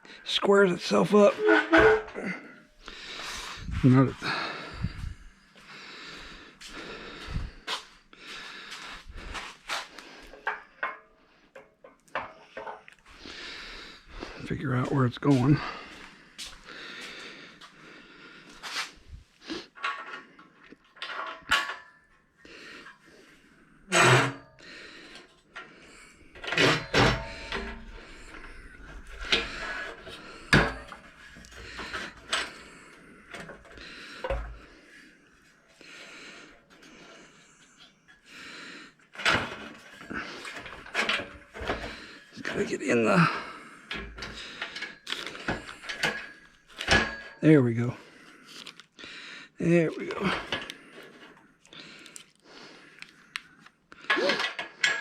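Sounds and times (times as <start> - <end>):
metal rattling and scraping: 0.9 - 2.4, 23.9 - 34.7, 39.1 - 47.4
close breathing: 2.1 - 11.6, 12.3 - 14.6, 15.2 - 20.9, 22.4 - 23.9, 24.5 - 55.0.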